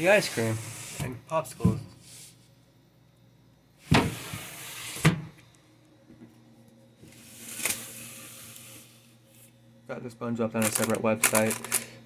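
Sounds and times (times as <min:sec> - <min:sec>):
freezer lid opening and shutting: 0:03.8 - 0:05.4.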